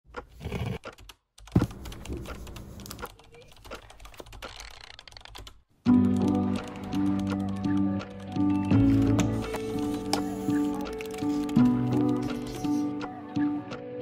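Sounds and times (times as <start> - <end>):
typing on a keyboard: 0.8 - 8.5
music with steady melody: 5.9 - 14.0.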